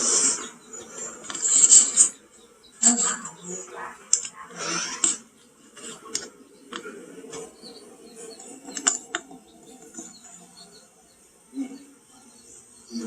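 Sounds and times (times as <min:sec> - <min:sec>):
low murmur of room noise: 0:00.0 - 0:13.0
sharp clicks: 0:04.1 - 0:04.4, 0:08.4 - 0:09.2.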